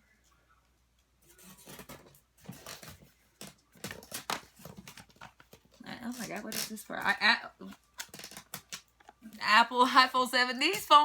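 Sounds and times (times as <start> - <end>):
packaging rustling and crinkling: 1.4 - 6.8, 7.8 - 9.2.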